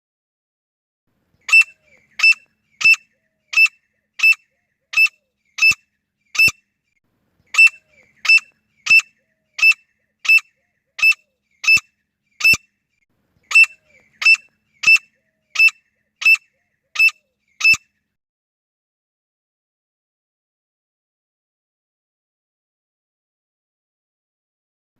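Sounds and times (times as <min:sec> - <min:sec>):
francolin calling: 0:01.4 - 0:06.6, 0:07.5 - 0:12.7, 0:13.4 - 0:17.9.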